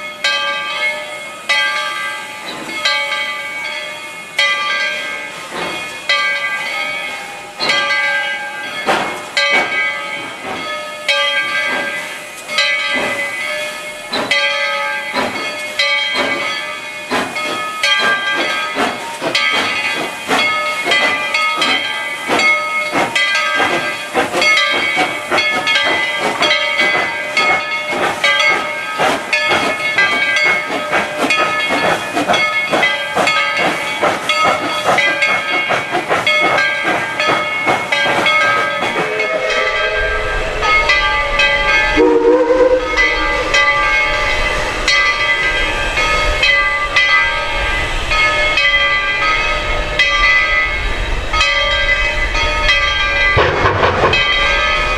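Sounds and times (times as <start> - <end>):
deep rumble of train rolling: 0.2 - 54.9
steam locomotive exhaust chuffs: 4.6 - 54.9
hissing steam: 5.0 - 54.9.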